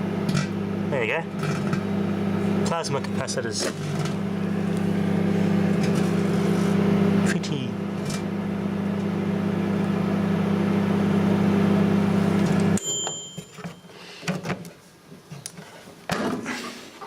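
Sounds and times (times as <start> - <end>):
microwave oven humming: 0.0 - 14.2
microwave beep: 8.3 - 14.1.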